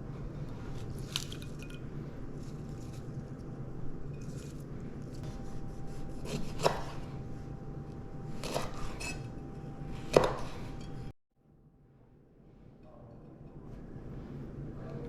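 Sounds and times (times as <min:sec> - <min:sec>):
kitchen utensil scraping: 0:08.3 - 0:11.1.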